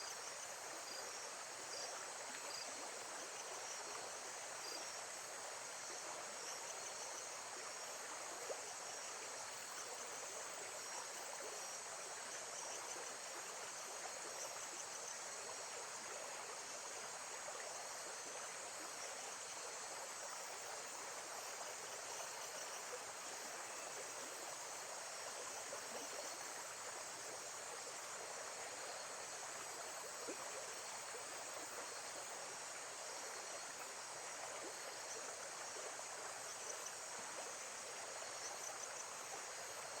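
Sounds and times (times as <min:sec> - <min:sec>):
insects chirping: 0:00.0 - 0:08.0.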